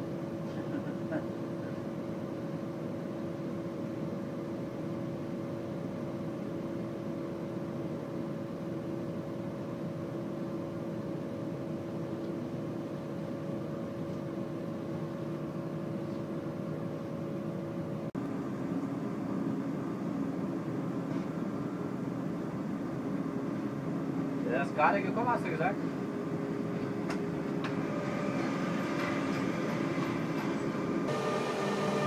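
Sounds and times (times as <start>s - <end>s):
steady hum: 9.6s - 32.0s
train rumble: 20.5s - 32.0s.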